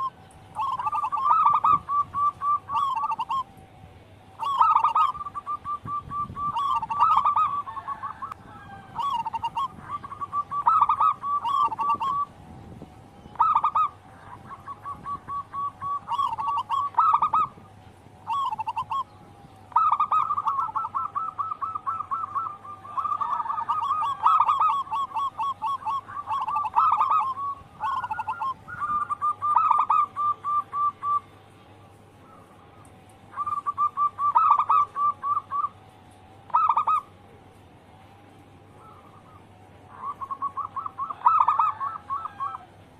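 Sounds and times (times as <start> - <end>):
doves cooing rapidly: 0.0 - 37.3, 38.6 - 42.9.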